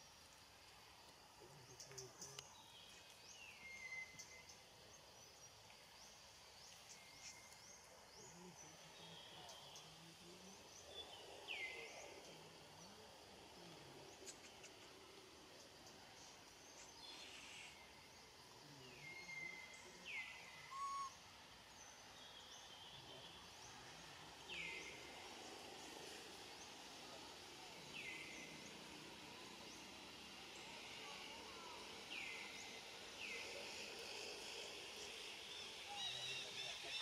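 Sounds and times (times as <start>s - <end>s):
bird calling: 20.2s - 21.2s.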